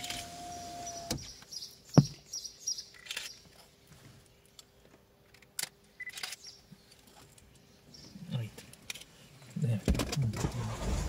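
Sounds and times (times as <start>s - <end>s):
small birds chirping: 0.4s - 5.0s, 5.8s - 9.9s
sharp thump: 2.0s - 2.2s.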